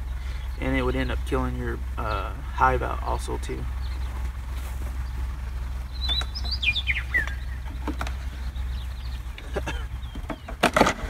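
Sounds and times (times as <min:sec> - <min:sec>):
steady low hum: 0:00.0 - 0:11.0
bird chirping falling notes: 0:03.0 - 0:11.0.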